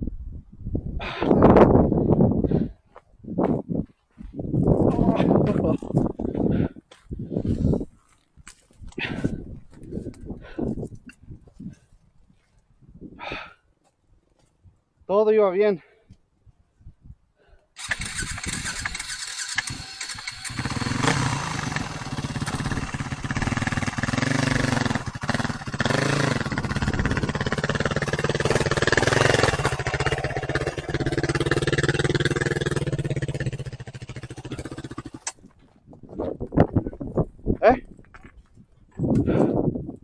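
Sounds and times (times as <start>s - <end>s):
wind and road noise: 0.0s - 15.1s, 16.1s - 40.0s
motorcycle engine running: 17.8s - 35.4s.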